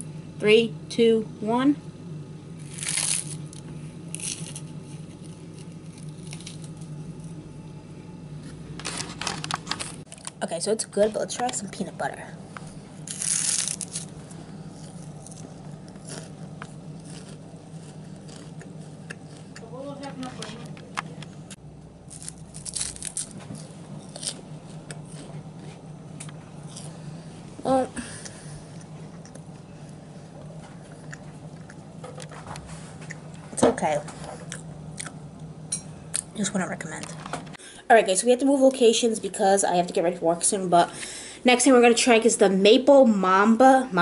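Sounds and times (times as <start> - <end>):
steady low hum: 0.0 - 44.0
chewing crunchy rice cake: 2.6 - 7.4, 13.0 - 19.7, 22.0 - 25.8.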